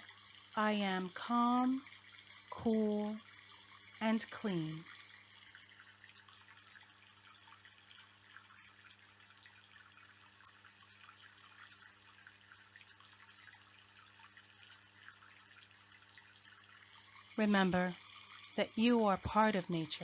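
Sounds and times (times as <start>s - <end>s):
water pattering: 0.0s - 9.8s, 11.2s - 20.0s.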